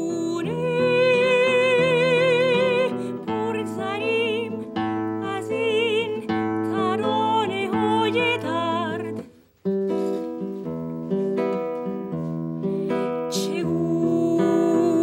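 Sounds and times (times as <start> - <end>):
person singing with vibrato: 0.0 - 9.3, 12.9 - 15.0
instrumental accompaniment: 0.0 - 15.0.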